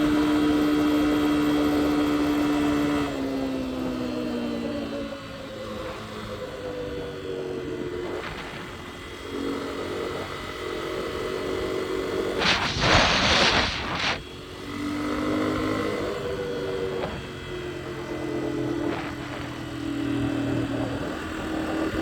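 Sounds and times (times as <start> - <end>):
dirt bike engine revving: 7.8 - 22.0
loud hissing rush: 12.4 - 14.3.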